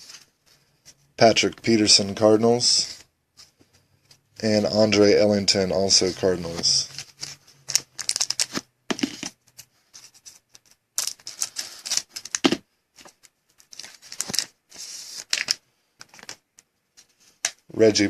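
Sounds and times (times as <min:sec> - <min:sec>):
trading cards sliding and clicking: 0:05.8 - 0:17.6.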